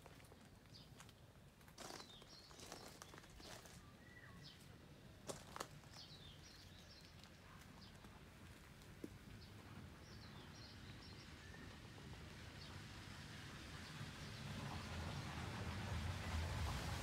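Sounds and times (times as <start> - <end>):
faint bird chirps: 2.3 - 4.7.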